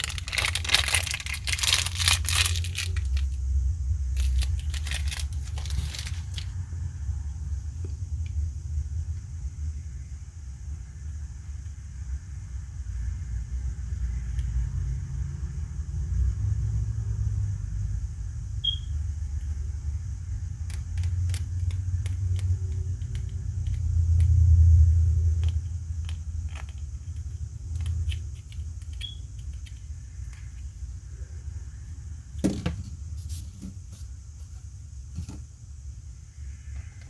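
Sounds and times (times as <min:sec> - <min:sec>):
plastic toy parts clicking: 0:00.0 - 0:03.2.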